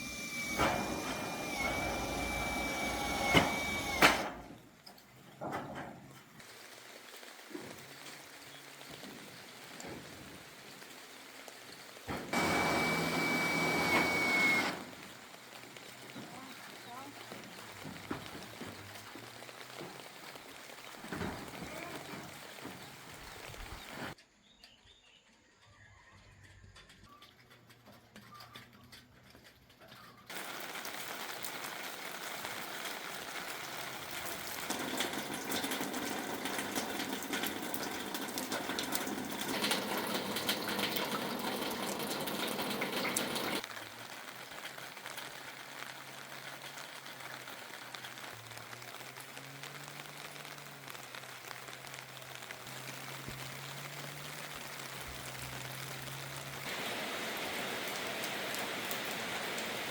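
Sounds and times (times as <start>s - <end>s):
rushing water: 30.3s - 59.9s.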